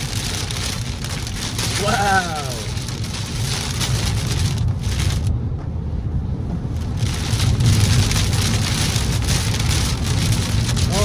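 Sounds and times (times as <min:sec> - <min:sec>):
heavy rain on a car: 0:00.0 - 0:05.4, 0:06.6 - 0:11.0
road and tyre noise: 0:00.0 - 0:11.0.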